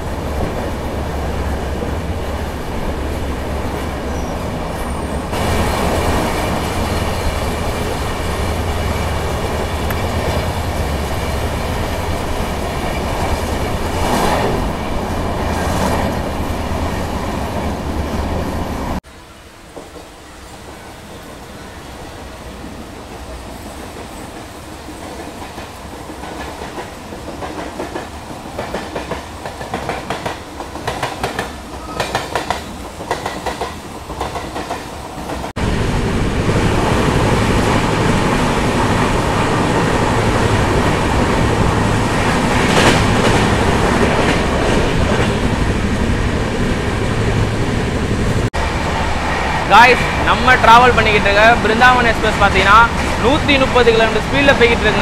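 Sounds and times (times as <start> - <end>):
moving train rumble: 0.0 - 55.0
train wheels clattering over track: 22.9 - 48.5, 49.9 - 55.0.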